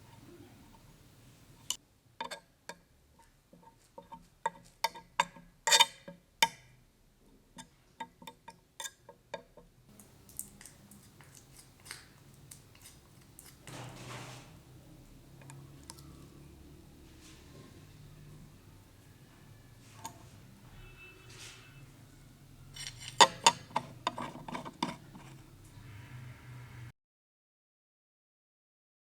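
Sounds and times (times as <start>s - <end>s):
brief ringing tone: 20.7s - 21.9s.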